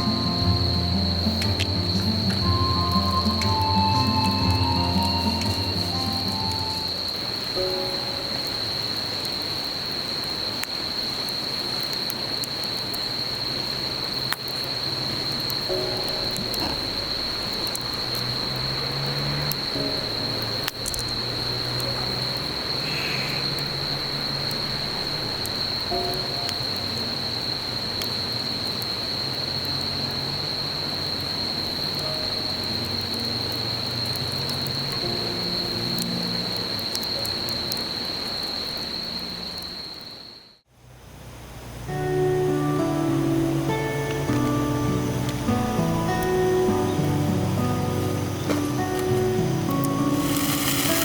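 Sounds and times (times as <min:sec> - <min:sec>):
faint background music: 0:00.0 - 0:08.8, 0:41.8 - 0:51.0
high-pitched insect drone: 0:00.0 - 0:08.8, 0:42.1 - 0:51.0
continuous hiss: 0:00.0 - 0:51.0.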